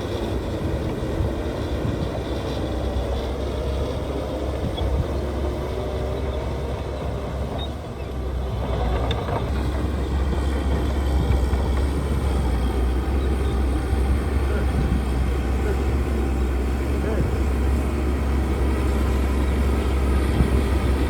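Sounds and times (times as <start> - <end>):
heavy machinery rumbling: 0.0 - 21.0.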